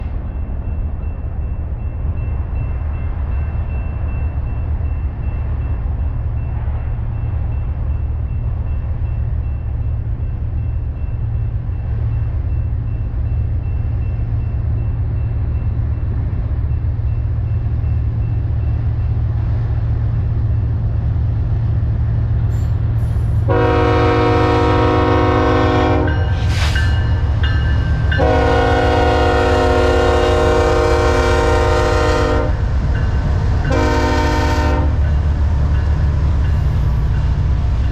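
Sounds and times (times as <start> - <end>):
multi-tone air horn blasts: 23.5 - 26.2, 28.2 - 32.6, 33.7 - 35.0.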